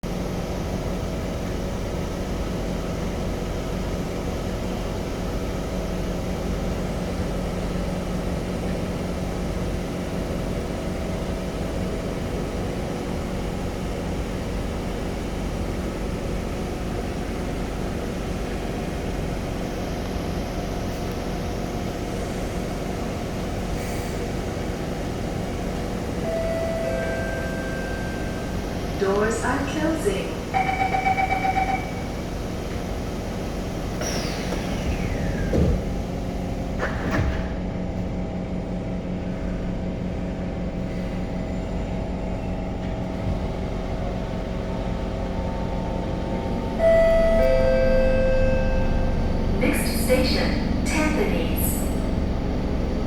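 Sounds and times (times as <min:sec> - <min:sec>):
train equipment humming: 0:00.1 - 0:53.0
door chime tone: 0:26.2 - 0:28.5, 0:30.6 - 0:32.1, 0:46.8 - 0:49.5.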